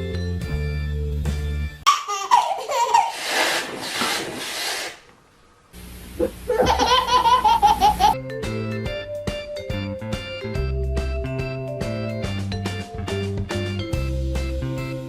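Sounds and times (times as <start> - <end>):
music: 0.0 - 1.9, 8.2 - 15.0
baby laughing: 1.9 - 4.0, 6.2 - 8.2.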